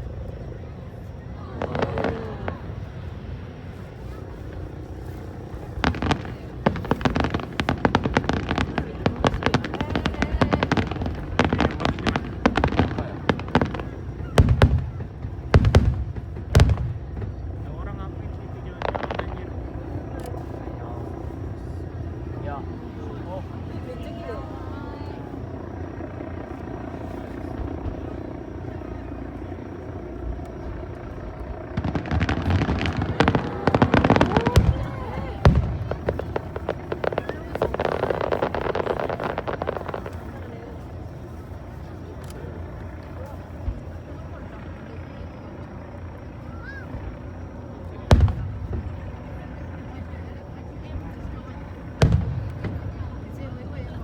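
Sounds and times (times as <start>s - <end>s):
deep firework booms: 1.5s - 3.8s, 4.4s - 20.6s, 29.7s - 40.9s, 48.1s - 49.4s, 51.2s - 53.4s
fireworks cracking and banging: 1.5s - 20.5s, 30.4s - 40.9s, 48.1s - 49.2s, 51.1s - 54.0s.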